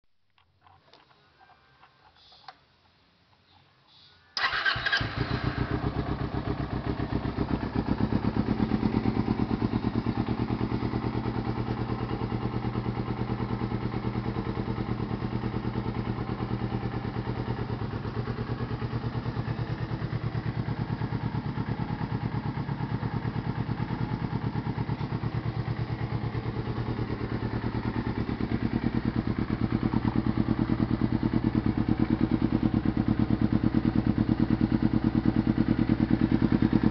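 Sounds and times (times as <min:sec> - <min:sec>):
motorcycle engine starting and idling: 0:04.4 - 0:36.9.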